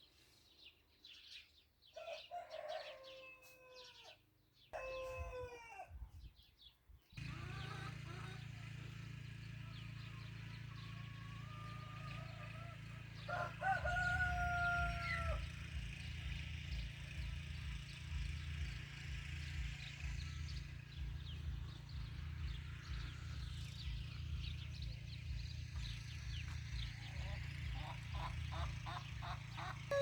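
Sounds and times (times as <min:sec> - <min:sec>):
bird calling: 0:07.2 - 0:16.0, 0:19.9 - 0:30.0.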